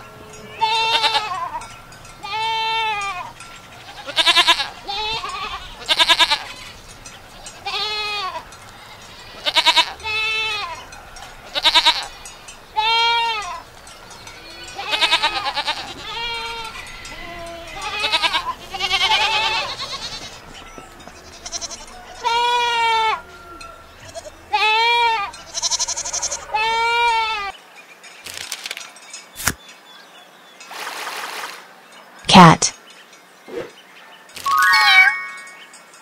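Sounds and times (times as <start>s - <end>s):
goats bleating: 0.2s - 6.8s, 7.6s - 10.9s, 11.5s - 13.7s, 14.3s - 27.5s.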